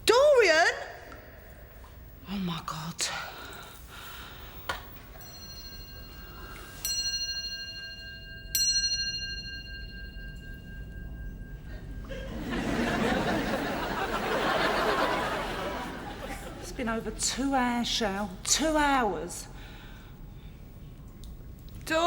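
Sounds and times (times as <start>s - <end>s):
bell chimes: 5.1s - 15.0s.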